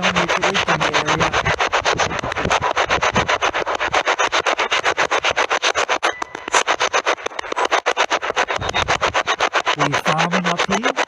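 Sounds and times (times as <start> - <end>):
radio scanner chopping static: 0.0 - 11.0.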